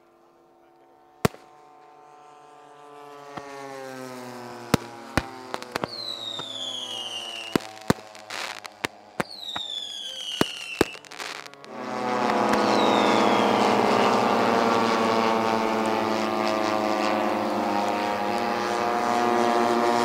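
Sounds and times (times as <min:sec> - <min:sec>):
aircraft engine passing: 0:00.0 - 0:20.0
fireworks bangs: 0:01.2 - 0:01.6, 0:04.6 - 0:15.2
firework whistles sliding down: 0:05.5 - 0:14.8.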